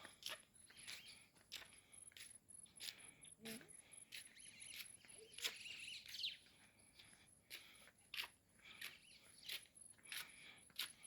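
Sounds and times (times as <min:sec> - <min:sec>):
faint footsteps walking: 0:00.0 - 0:11.0
bird chirping: 0:00.2 - 0:01.8, 0:02.6 - 0:07.2, 0:08.2 - 0:10.9.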